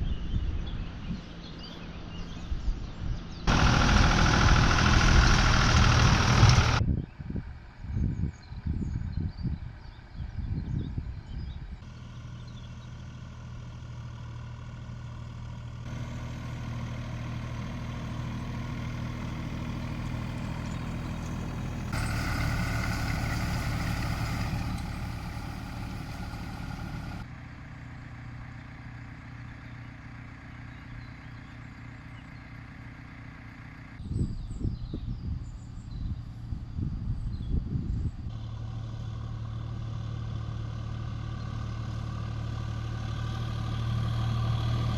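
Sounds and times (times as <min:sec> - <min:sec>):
engine running: 0:03.3 - 0:06.9, 0:11.8 - 0:34.0, 0:38.0 - 0:44.9.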